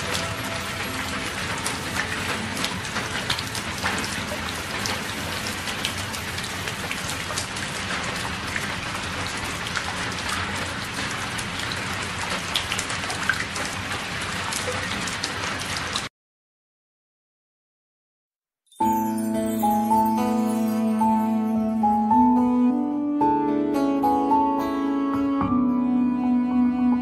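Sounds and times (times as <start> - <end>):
steady rain falling: 0.0 - 16.1.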